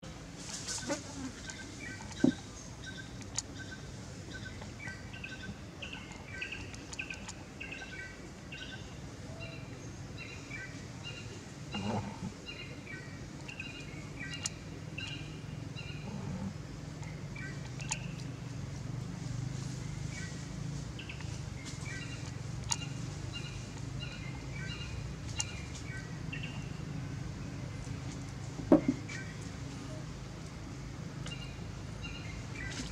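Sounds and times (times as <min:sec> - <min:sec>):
steady low hum: 0:00.0 - 0:32.9
bird chirps: 0:12.5 - 0:16.1
soft thump: 0:28.6 - 0:29.0.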